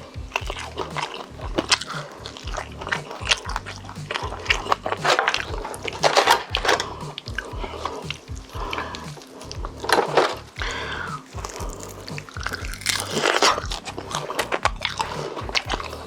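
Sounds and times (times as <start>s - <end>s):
person chewing with crunches: 0.0s - 16.0s.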